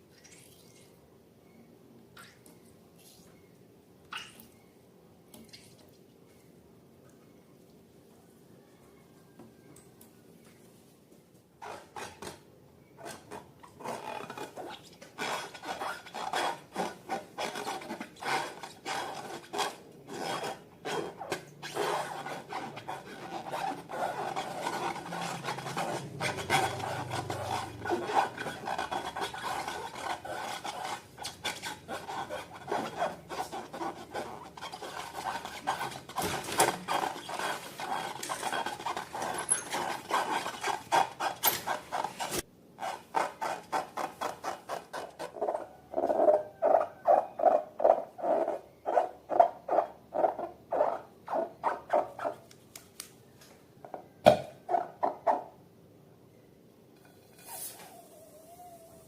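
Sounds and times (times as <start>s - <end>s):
scraping rub in bowl: 13.0s - 52.5s.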